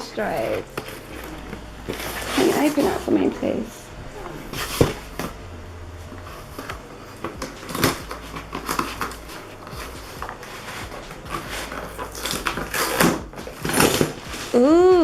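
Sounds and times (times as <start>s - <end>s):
loud crunches: 4.0s - 14.6s
packaging crackling and tearing: 4.5s - 14.6s.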